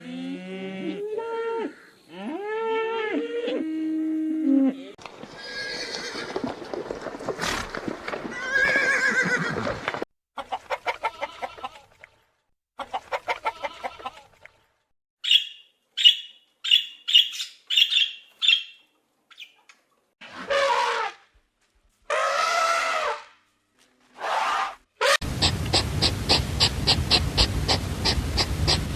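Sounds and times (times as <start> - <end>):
loud broad animal calls: 24.2 - 28.9
pitched animal calls: 24.2 - 28.9.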